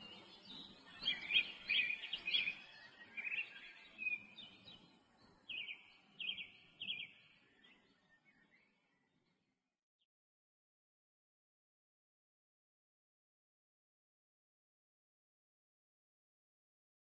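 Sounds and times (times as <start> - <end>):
small bird chirping: 0.0 - 9.1.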